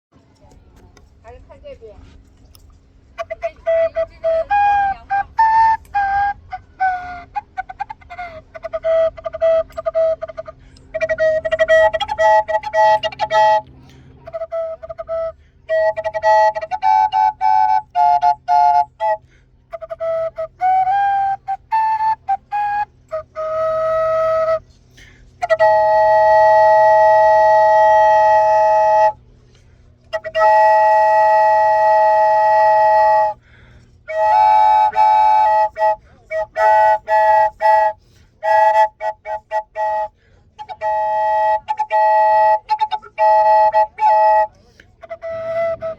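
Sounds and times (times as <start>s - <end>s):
flute melody: 2.5s - 29.3s, 29.9s - 45.9s.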